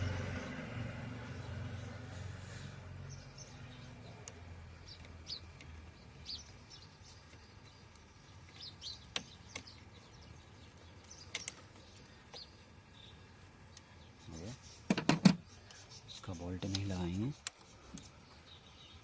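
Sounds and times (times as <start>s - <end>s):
sharp clicks: 7.3s - 9.8s, 11.0s - 12.4s.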